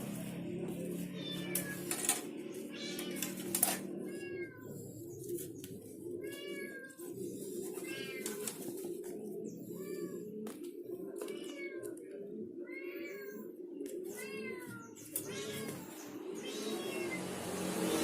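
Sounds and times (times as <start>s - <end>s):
steady low hum: 0.0s - 11.2s
animal calls: 0.0s - 17.3s.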